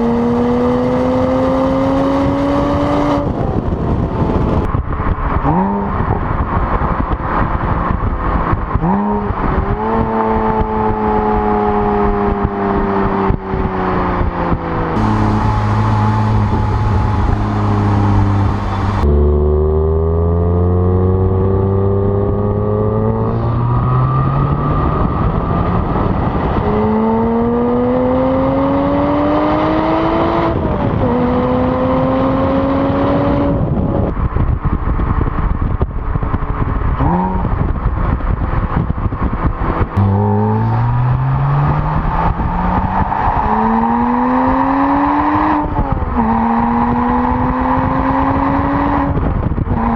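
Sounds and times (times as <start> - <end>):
car engine accelerating hard: 0.0 - 49.9
engine rev blips: 14.9 - 20.7, 39.9 - 49.2.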